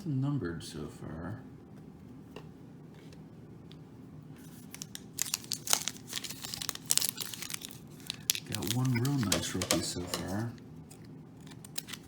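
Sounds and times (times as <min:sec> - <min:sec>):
wrapper tearing and crinkling: 0:04.5 - 0:09.8, 0:11.4 - 0:12.0.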